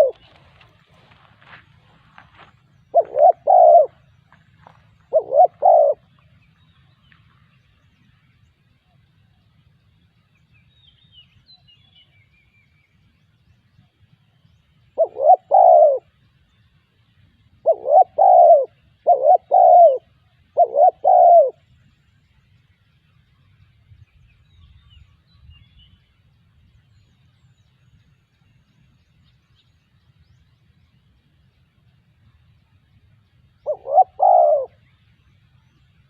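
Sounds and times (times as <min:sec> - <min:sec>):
dove cooing: 0:00.0 - 0:00.8, 0:02.9 - 0:06.1, 0:15.0 - 0:16.2, 0:17.6 - 0:21.6, 0:33.6 - 0:34.9.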